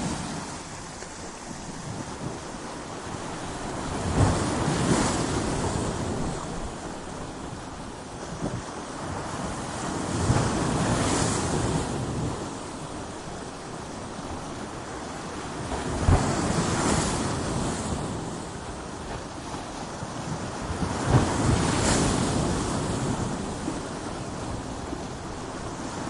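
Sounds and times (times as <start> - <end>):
surf hiss: 0.0 - 8.2
waves crashing on rocks: 0.0 - 26.0.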